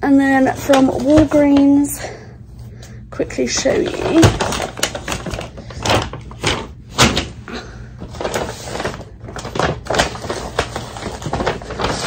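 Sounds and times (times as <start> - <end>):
shopping bag rustling: 3.4 - 12.0.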